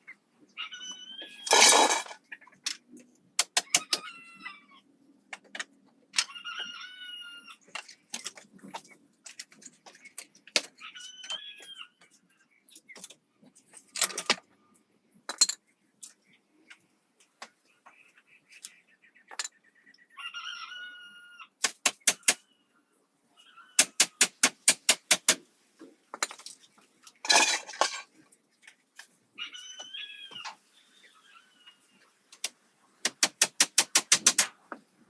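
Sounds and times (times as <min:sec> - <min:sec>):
chicken calling: 0:00.5 - 0:02.0, 0:29.4 - 0:32.0.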